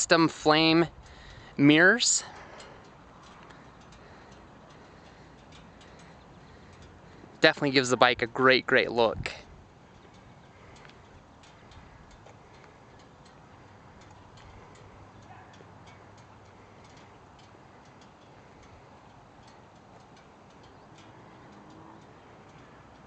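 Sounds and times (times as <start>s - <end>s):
faint ticks: 2.3s - 7.4s, 9.6s - 23.0s.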